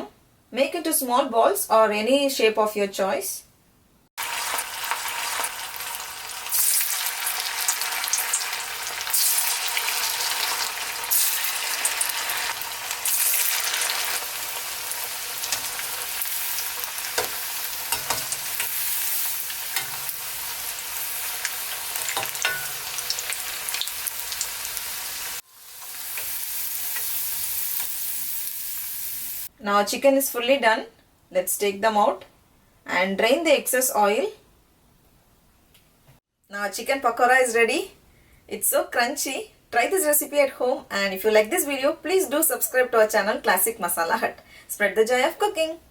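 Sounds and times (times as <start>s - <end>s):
food deep-frying in oil: 4.2s - 29.5s.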